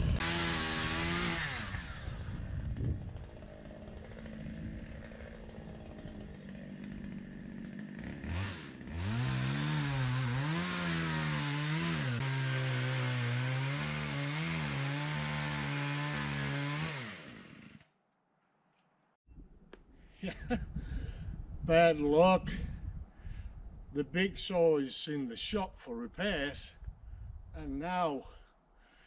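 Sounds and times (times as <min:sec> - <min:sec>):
chainsaw cutting tree: 0:00.0 - 0:18.0.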